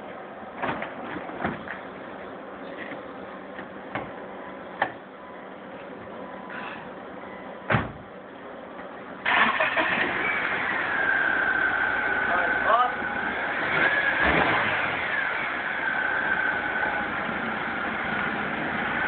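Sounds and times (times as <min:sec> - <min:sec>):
car door shutting: 0:07.7 - 0:08.0
car engine cranking and starting: 0:09.2 - 0:19.0.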